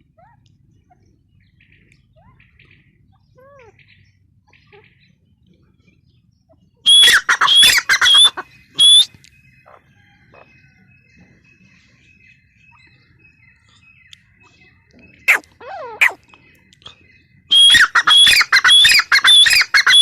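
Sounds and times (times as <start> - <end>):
francolin calling shrill notes: 6.9 - 9.2, 17.5 - 20.0.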